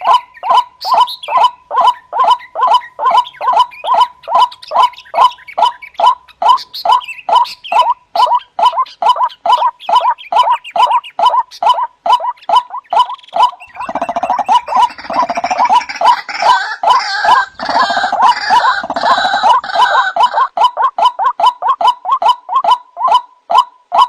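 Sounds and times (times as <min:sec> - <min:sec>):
harsh dense bird calls: 0:00.0 - 0:24.0
waterhen croaking calls: 0:00.0 - 0:24.0.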